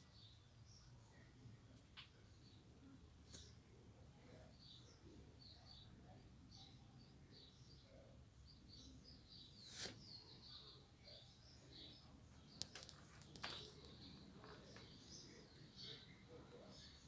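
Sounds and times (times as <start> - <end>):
faint bird chirps: 4.2 - 17.0.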